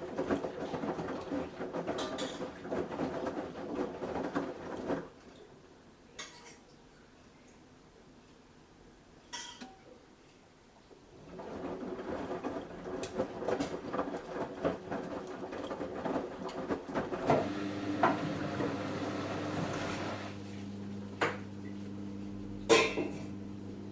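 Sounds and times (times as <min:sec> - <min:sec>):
washing machine drum tumbling: 0:11.3 - 0:20.4.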